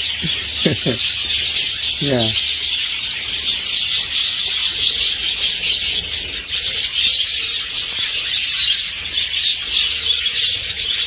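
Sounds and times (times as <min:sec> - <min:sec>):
budgerigars chattering: 0:00.0 - 0:07.4.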